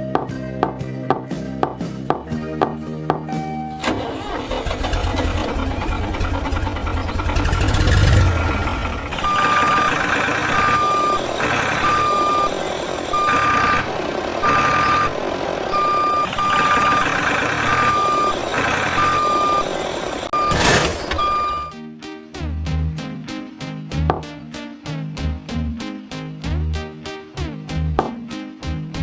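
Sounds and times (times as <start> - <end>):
truck engine rumbling: 0.0 - 21.6
reversing alarm beeps: 7.0 - 21.8.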